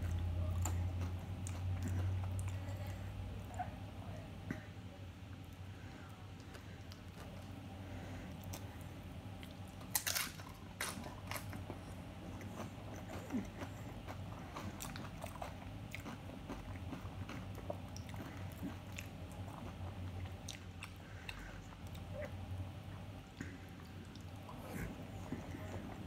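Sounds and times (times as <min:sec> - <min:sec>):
person crunching tortilla chip: 0:09.8 - 0:11.6.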